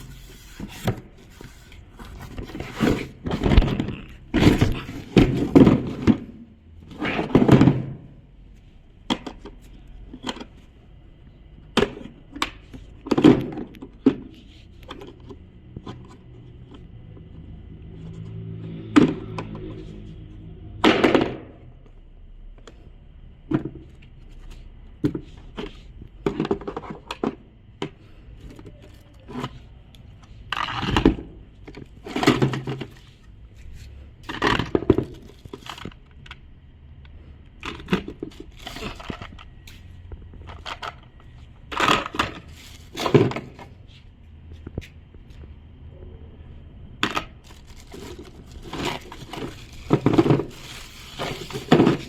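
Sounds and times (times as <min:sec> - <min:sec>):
packaging rustling and knocking: 0:00.0 - 0:06.4, 0:47.0 - 0:52.0.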